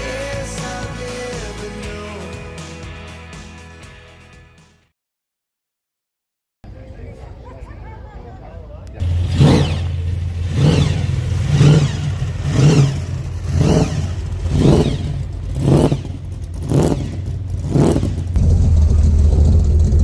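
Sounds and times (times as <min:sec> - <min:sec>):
car engine revving at idle: 0:09.0 - 0:20.0.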